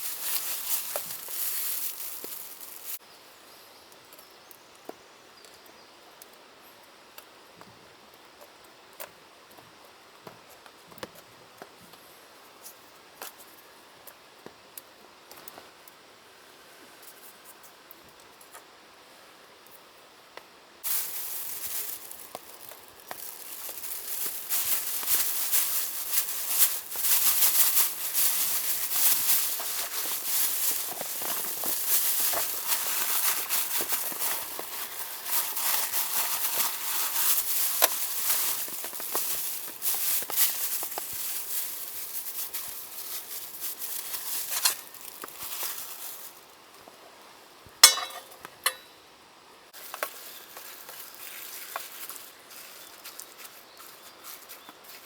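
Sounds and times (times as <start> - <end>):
sizzling crackle with pops: 0.0 - 3.0, 3.9 - 12.0, 12.6 - 16.0, 17.0 - 18.7, 19.6 - 47.0, 49.7 - 52.3.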